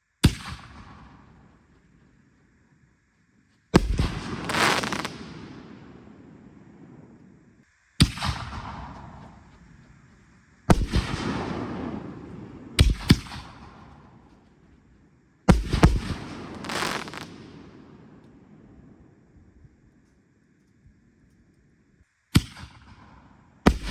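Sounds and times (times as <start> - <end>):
firework shells bursting: 3.8 - 7.2, 15.5 - 19.0.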